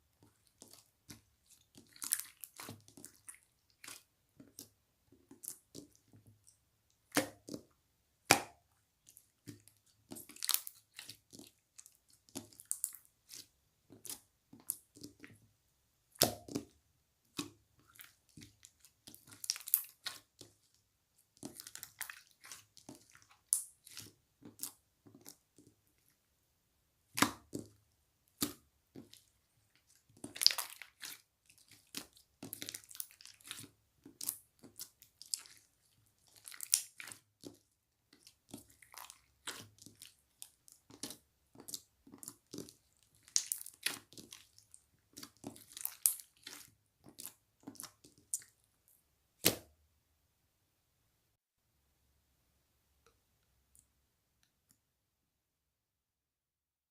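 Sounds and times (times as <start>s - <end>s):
slime squishing and popping: 7.1s - 15.2s, 16.2s - 20.6s, 27.2s - 27.7s, 30.2s - 37.6s, 38.2s - 48.5s.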